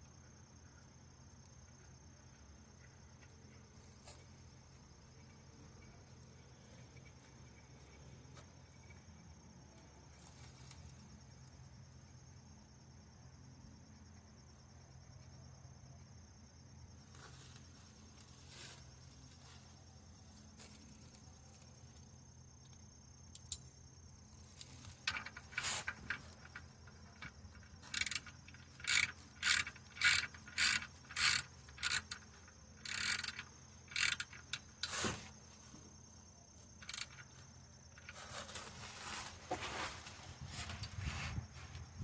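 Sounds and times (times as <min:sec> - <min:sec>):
ratchet wrench clicking: 0:23.3 - 0:23.6, 0:25.1 - 0:35.2, 0:36.8 - 0:37.3.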